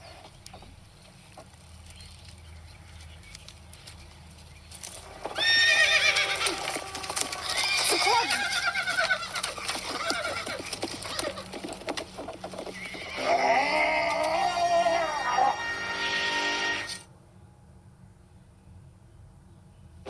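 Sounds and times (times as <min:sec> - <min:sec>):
hooves clip-clopping: 0:00.0 - 0:15.8
horse whinnying: 0:05.1 - 0:11.8, 0:12.6 - 0:17.0.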